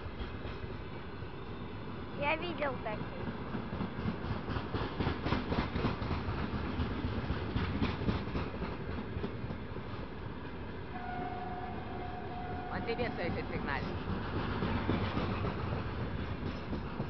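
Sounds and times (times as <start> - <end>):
wheels clacking over rail joints: 3.2 - 10.2, 12.6 - 17.0
freight wagons rumbling: 11.0 - 17.0.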